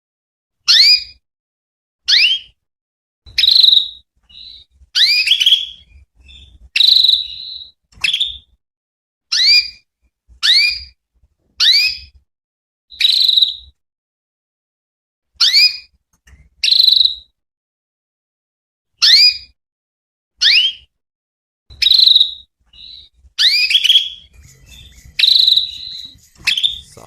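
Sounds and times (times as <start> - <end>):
canary chirping: 2.1 - 2.6, 3.3 - 8.6, 9.3 - 9.8, 10.4 - 11.0, 11.6 - 12.2, 12.9 - 13.7, 15.4 - 17.3, 20.4 - 20.9, 21.7 - 27.0.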